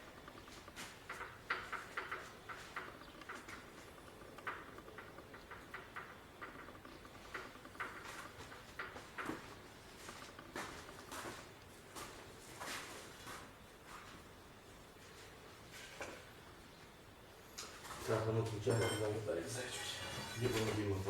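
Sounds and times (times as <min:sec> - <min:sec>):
hand tools clicking and tapping: 0:00.0 - 0:11.4.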